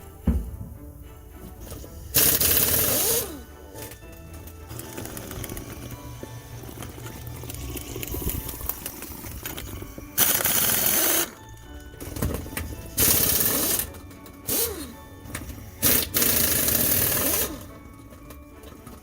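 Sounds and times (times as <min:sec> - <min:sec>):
tool whine: 0:01.6 - 0:19.0
impact wrench hammering: 0:13.0 - 0:17.8.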